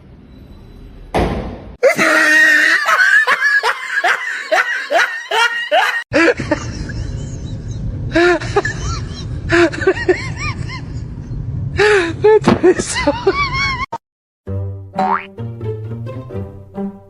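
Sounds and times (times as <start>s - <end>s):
person laughing hard: 1.8s - 11.1s, 11.8s - 13.9s.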